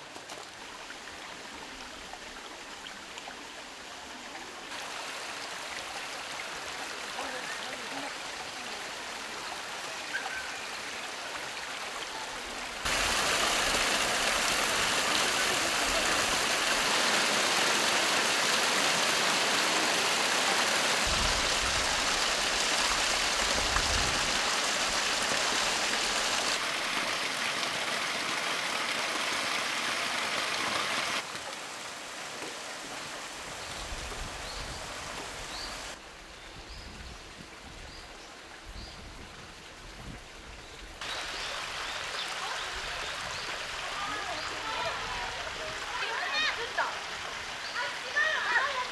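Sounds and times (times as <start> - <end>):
stream water rushing: 0.0 - 36.7, 37.3 - 48.9
faint bird chirps: 10.0 - 10.8.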